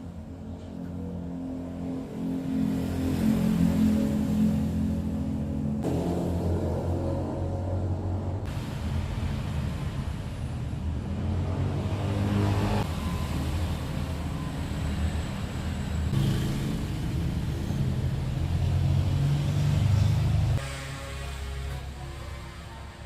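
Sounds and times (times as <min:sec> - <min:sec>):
car and motorbike engines passing: 0:01.0 - 0:08.6, 0:10.8 - 0:20.6.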